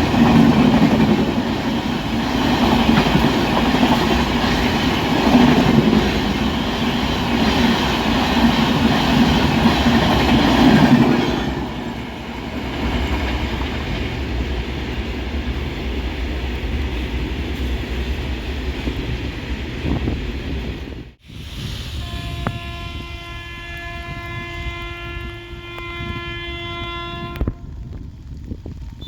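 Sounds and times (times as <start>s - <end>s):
train wheels clattering over rail joints: 0.0s - 19.2s.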